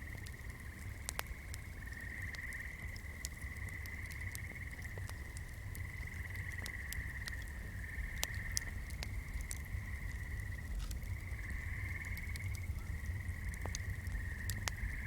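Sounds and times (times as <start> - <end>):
low background rumble: 0.0 - 15.0
small crackles: 0.0 - 15.0
frogs or insects trilling: 0.1 - 15.0.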